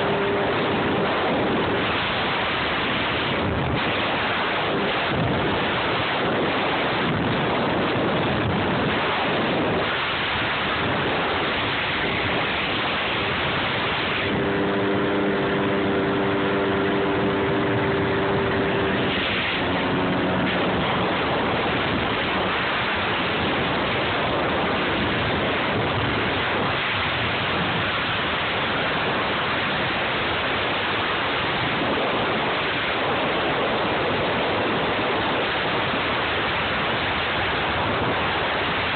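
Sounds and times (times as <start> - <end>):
jet ski engine tone: 0.0 - 38.9
wind and water rushing: 0.0 - 38.9.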